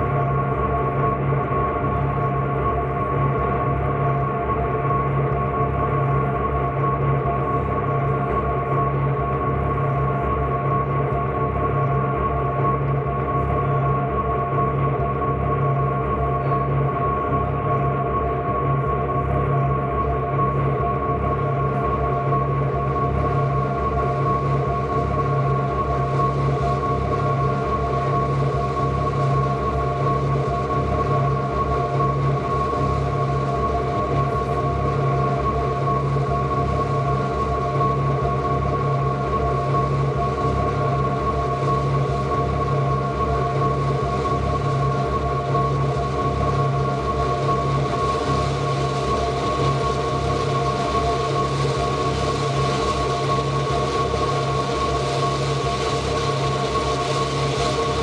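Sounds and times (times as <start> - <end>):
ambient electronic drone music: 0.0 - 58.0.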